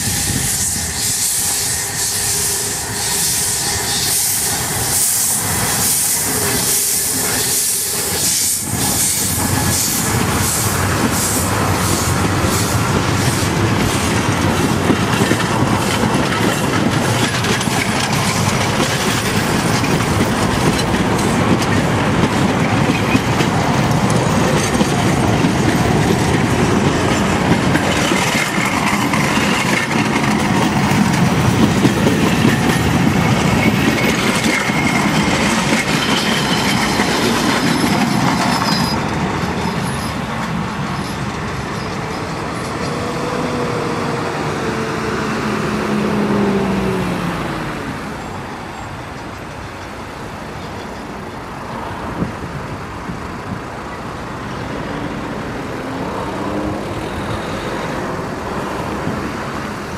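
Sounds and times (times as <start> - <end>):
train wheels clicking over rail joints: 0.0 - 43.2.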